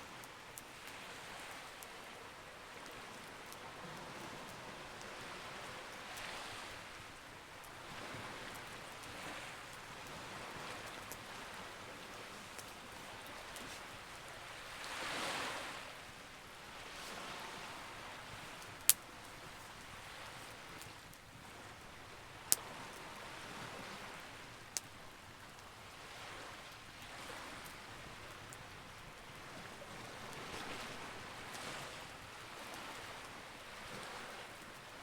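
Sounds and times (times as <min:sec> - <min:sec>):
sea waves: 0:00.0 - 0:35.0
campfire crackling and popping: 0:04.3 - 0:15.3, 0:16.2 - 0:23.4, 0:24.0 - 0:25.9.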